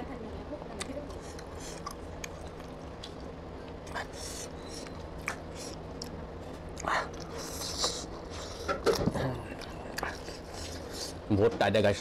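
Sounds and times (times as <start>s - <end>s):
low hum: 0.0s - 11.6s
person chewing: 1.1s - 11.2s.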